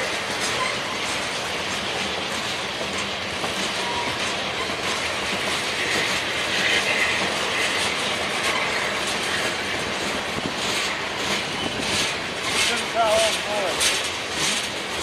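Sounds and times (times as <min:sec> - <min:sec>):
freight train wheels rumbling: 0:00.0 - 0:15.0
high wheel squeal: 0:00.5 - 0:01.2, 0:03.7 - 0:05.1, 0:05.8 - 0:09.8.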